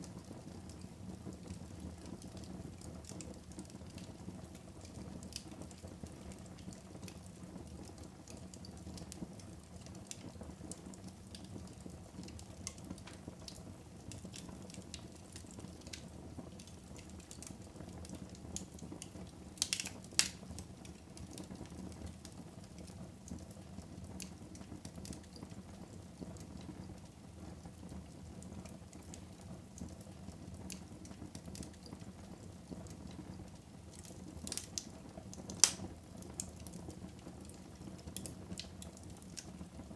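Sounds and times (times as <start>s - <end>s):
wood fire crackling: 0.0s - 39.9s
sharp pops from fire: 12.2s - 25.4s, 33.9s - 39.6s.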